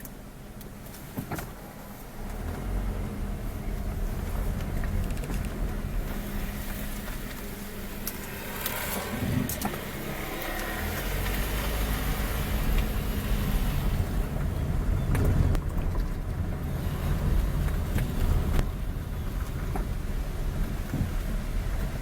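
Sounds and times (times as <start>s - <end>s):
vehicle rumble: 0.0s - 22.0s
wind buffeting microphone: 3.3s - 22.0s.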